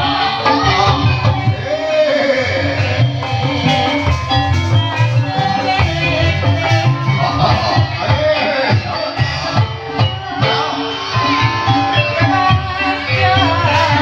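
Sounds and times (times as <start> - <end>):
drums keeping a steady beat: 0.0 - 14.0
held metallophone notes: 0.0 - 14.0
person singing: 0.0 - 14.0.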